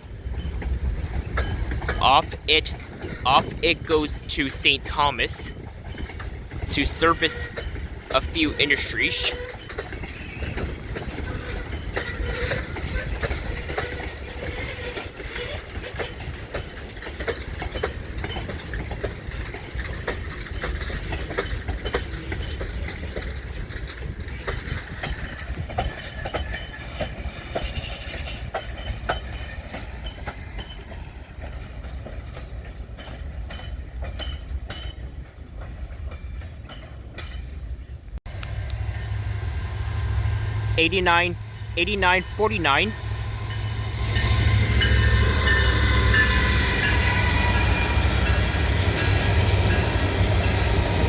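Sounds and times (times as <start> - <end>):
train rumbling on rails: 0.0 - 51.0
wheel clicks over rail joints: 9.3 - 37.6.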